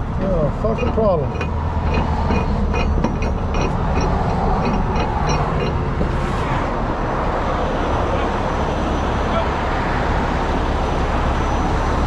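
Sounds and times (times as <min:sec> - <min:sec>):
diesel engine running: 0:00.0 - 0:12.0
rapid light ticks: 0:00.8 - 0:06.1.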